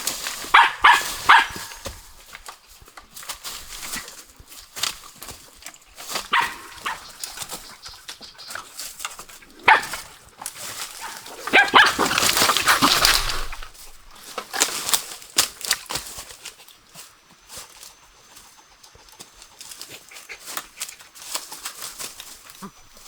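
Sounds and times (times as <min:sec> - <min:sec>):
rustling: 0:00.0 - 0:23.0
dog barking and whimpering: 0:00.5 - 0:02.2, 0:06.3 - 0:07.2, 0:09.5 - 0:10.2, 0:10.9 - 0:13.8.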